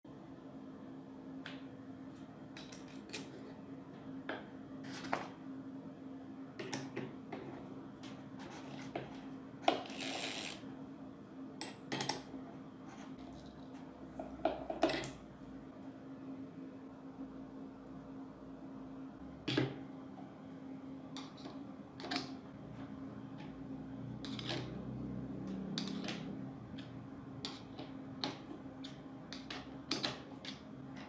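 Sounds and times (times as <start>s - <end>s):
faint steady hum: 0.1s - 31.0s.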